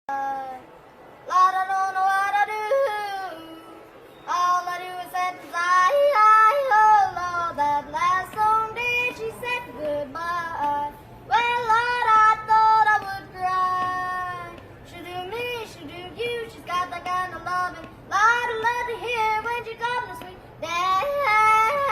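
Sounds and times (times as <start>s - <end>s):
child yodeling: 1.3s - 8.1s, 18.1s - 21.9s.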